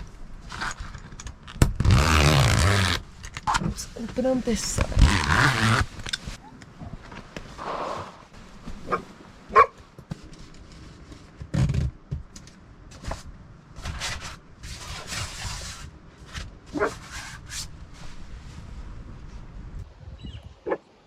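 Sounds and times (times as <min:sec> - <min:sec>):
rustling: 0:00.0 - 0:11.9, 0:12.5 - 0:19.8
dog barking: 0:08.9 - 0:09.8.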